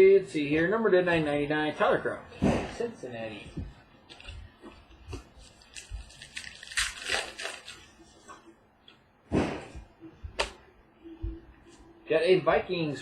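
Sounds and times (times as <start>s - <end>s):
trading cards and wrappers rustling: 4.1s - 8.5s.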